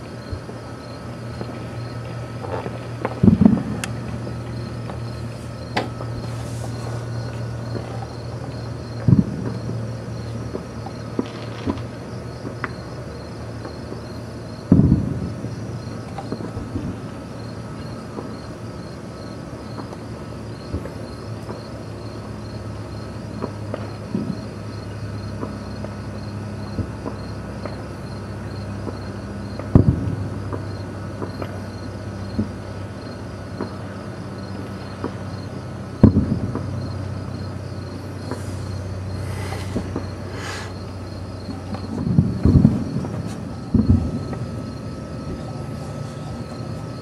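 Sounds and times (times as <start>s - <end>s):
crickets chirping: 0.0s - 47.0s
fireworks booms with echo: 1.3s - 12.9s, 13.6s - 17.2s, 28.8s - 32.8s, 34.8s - 37.2s, 38.2s - 45.8s
distant fireworks pops: 1.3s - 18.9s, 19.7s - 22.6s, 23.3s - 28.0s, 28.6s - 45.6s.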